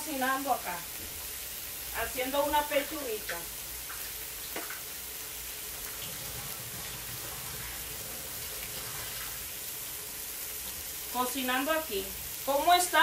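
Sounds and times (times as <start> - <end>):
chicken sizzling on griddle: 0.0 - 13.0
faucet running into sink: 5.9 - 9.4.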